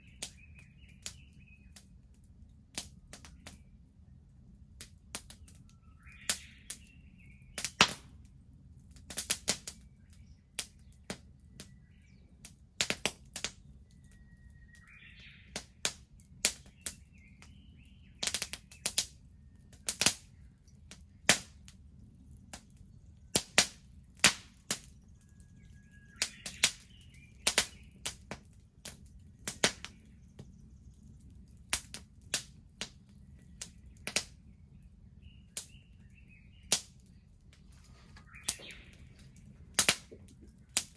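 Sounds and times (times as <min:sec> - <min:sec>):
bird chirping: 0:00.0 - 0:01.8, 0:05.4 - 0:07.7, 0:13.6 - 0:15.8, 0:16.6 - 0:20.5, 0:24.9 - 0:28.3, 0:29.0 - 0:31.7, 0:33.0 - 0:40.9
bonfire crackling: 0:00.0 - 0:40.9.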